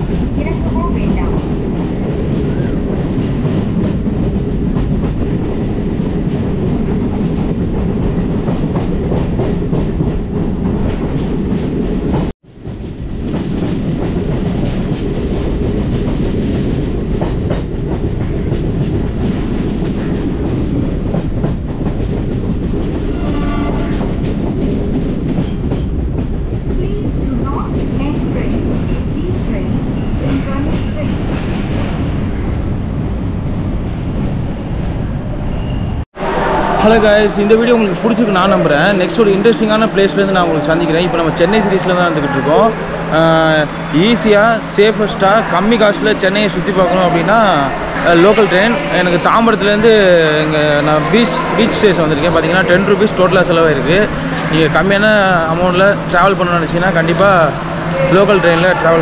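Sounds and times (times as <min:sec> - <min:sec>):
train wheels rumbling on rails: 0:00.0 - 0:59.0
high wheel squeals: 0:20.8 - 0:23.8, 0:28.0 - 0:31.8, 0:33.1 - 0:37.4.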